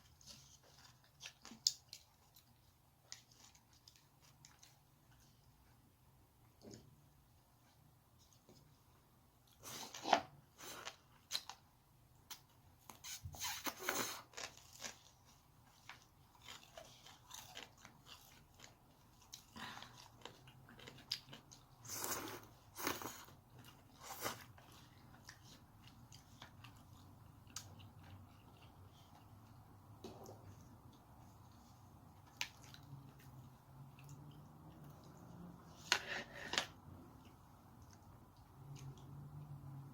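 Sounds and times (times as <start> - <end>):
person chewing crunchy food: 13.8 - 39.2.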